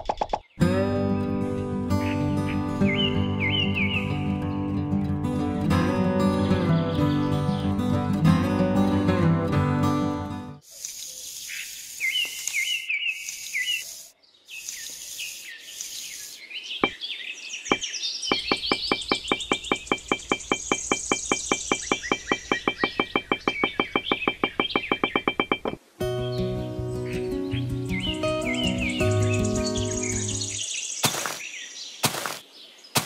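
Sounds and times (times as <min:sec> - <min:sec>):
light hiss: 0:10.6 - 0:16.6
rapid high clicking chirps: 0:10.7 - 0:17.0, 0:17.7 - 0:25.8
descending bird chirps: 0:14.6 - 0:26.4.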